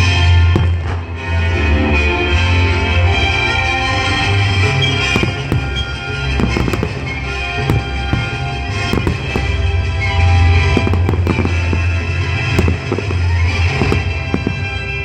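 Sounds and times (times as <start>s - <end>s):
loud music: 0.0s - 15.0s
firework shells bursting: 4.7s - 15.0s.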